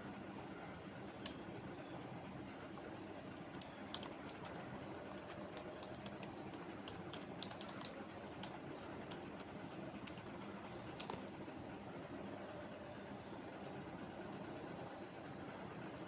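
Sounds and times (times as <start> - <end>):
background hum: 0.0 - 16.0
computer keyboard typing: 3.3 - 11.3.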